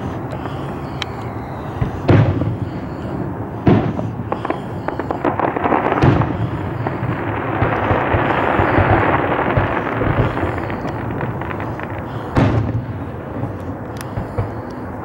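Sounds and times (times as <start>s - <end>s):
firework crackling: 0.0s - 15.0s
distant firework booms: 1.4s - 14.6s.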